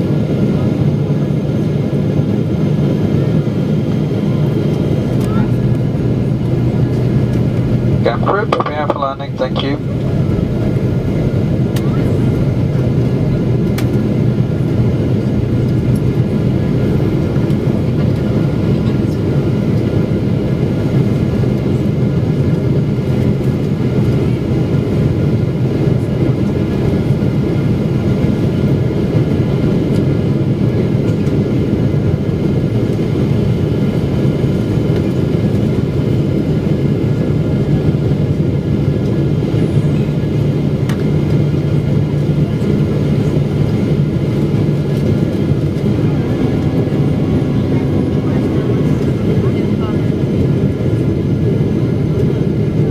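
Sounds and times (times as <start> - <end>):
airplane cabin drone: 0.0 - 52.9
faint steady tones: 4.4 - 18.4, 41.8 - 52.0.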